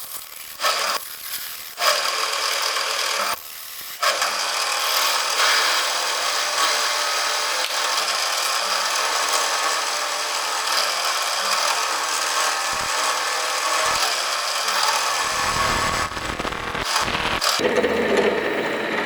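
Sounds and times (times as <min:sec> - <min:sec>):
power tool rasping: 0:00.0 - 0:17.6
deep rumble: 0:15.2 - 0:17.4.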